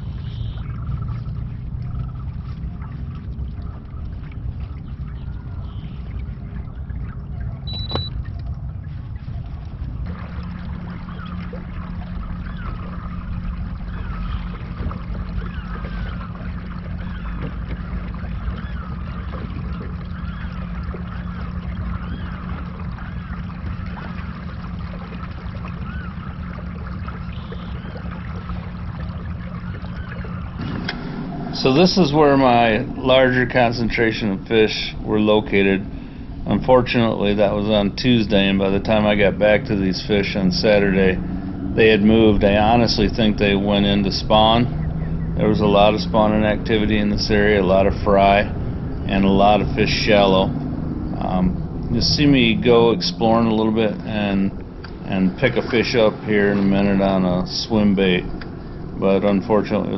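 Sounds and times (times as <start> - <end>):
water rumble: 0.0 - 59.9.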